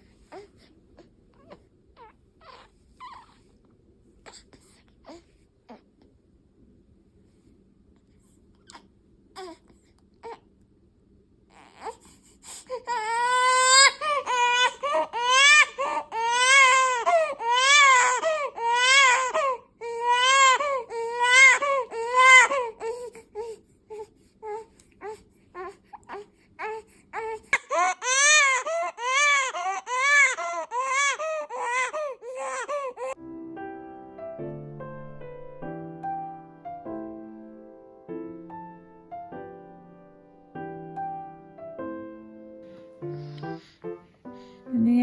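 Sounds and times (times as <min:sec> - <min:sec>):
baby crying: 0:01.4 - 0:03.4, 0:11.5 - 0:33.2
piano music: 0:32.4 - 0:45.0.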